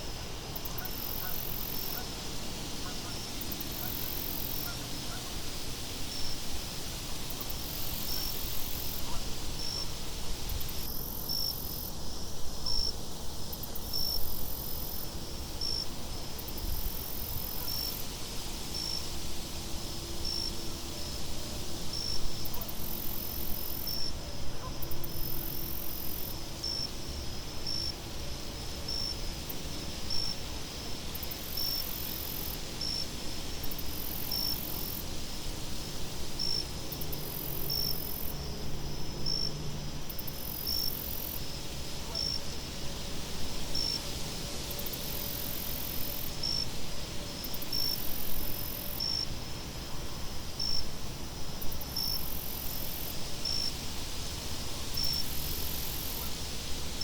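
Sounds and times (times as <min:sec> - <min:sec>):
crickets chirping: 0:00.0 - 0:57.0
high insect trill: 0:28.6 - 0:42.8.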